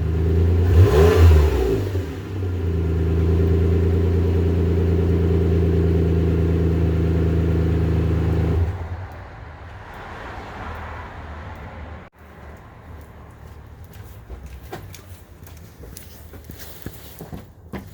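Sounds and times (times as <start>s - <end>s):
car exhaust droning: 0.0s - 11.6s.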